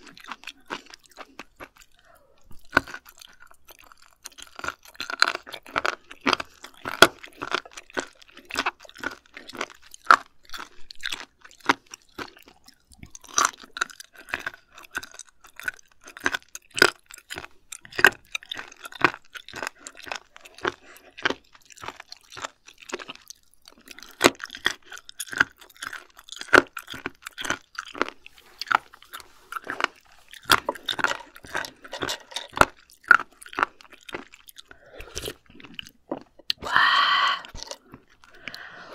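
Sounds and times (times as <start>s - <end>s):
chewing raw fish: 0.0s - 38.9s.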